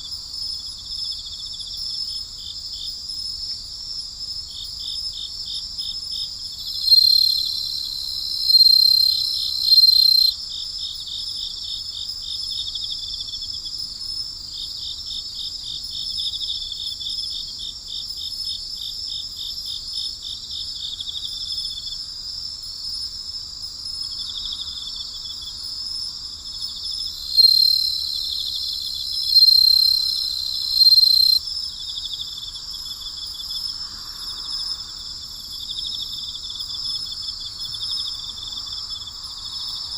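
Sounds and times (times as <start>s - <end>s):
insects trilling: 6.5s - 10.4s, 24.1s - 39.9s
loud long insect calls: 6.5s - 10.4s, 24.0s - 39.9s
rapid pulsed chirps: 6.8s - 10.3s, 27.3s - 31.4s.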